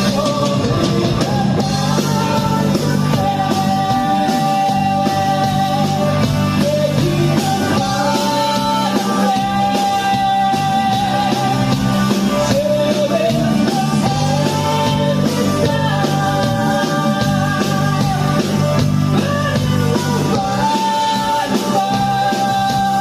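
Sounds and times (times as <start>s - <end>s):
guitar: 0.0s - 23.0s
person singing: 0.0s - 23.0s
rock music: 0.0s - 23.0s.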